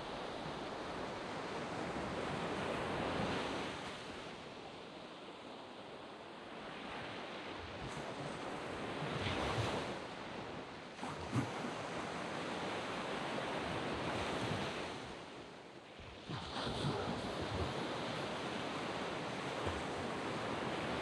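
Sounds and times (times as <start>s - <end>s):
waves breaking on sandy beach: 0.0s - 21.0s.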